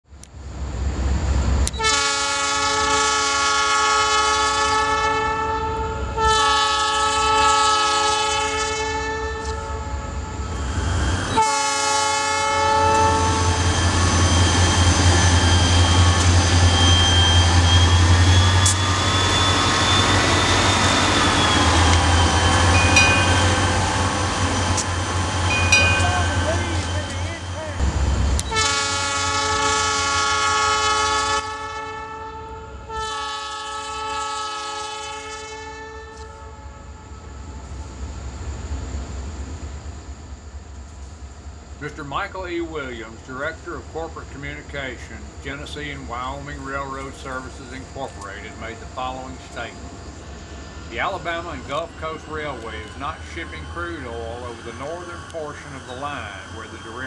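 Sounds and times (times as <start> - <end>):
train rolling past rumbling: 0.2 - 57.0
locomotive horn blasts: 1.7 - 10.5, 11.3 - 13.8, 15.5 - 24.8, 25.5 - 27.6, 28.4 - 37.4
thin high squeal: 13.2 - 23.8, 51.6 - 57.0.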